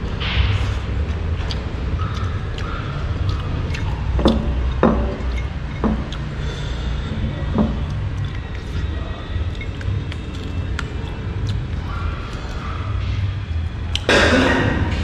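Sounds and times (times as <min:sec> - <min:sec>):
low background rumble: 0:00.0 - 0:15.0
utensils clinking against dishes: 0:03.7 - 0:10.6.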